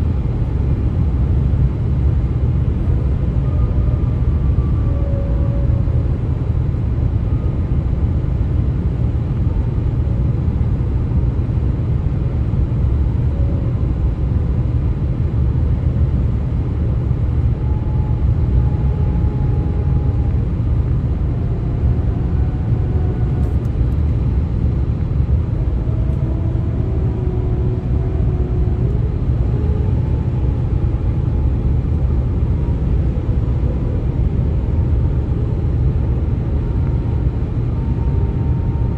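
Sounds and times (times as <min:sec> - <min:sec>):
vehicle road rumble: 0:00.0 - 0:38.9
wavering moaning tones: 0:02.6 - 0:08.0, 0:17.3 - 0:38.9.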